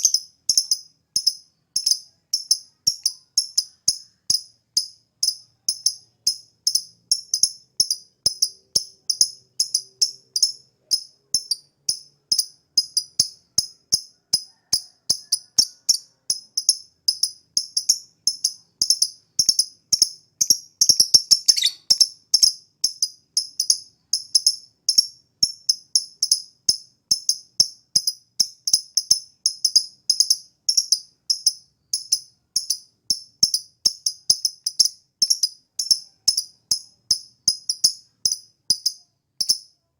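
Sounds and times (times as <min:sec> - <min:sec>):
lovebird chirping: 0:00.0 - 0:13.8, 0:15.3 - 0:25.6.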